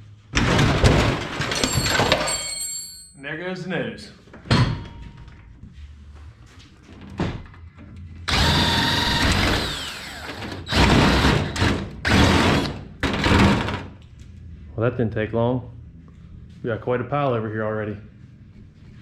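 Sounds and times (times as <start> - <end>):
cordless drill running: 8.3 - 12.8.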